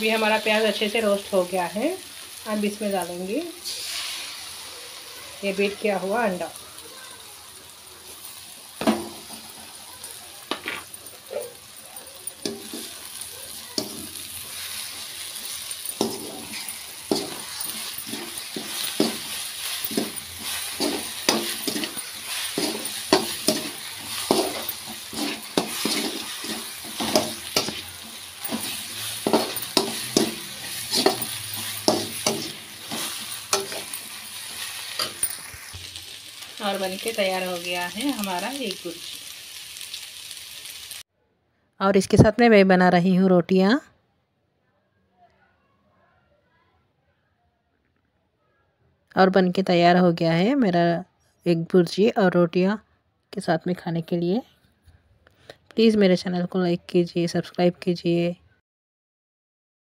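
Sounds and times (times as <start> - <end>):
egg sizzling in hot oil: 0.0 - 41.1
spatula scraping and knocking pan: 8.8 - 9.7, 10.4 - 35.6.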